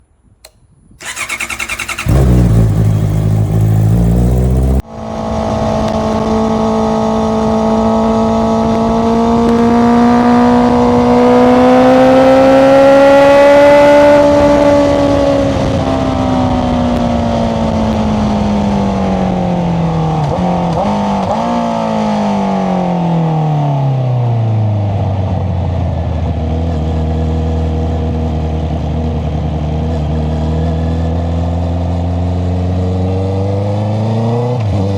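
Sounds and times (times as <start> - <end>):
motorcycle engine revving: 1.0 - 23.2, 26.2 - 34.9
low rumble: 1.8 - 4.8.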